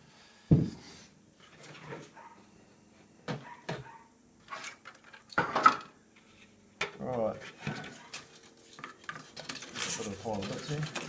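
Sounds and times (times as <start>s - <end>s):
plastic parts clicking and knocking: 7.6s - 11.0s.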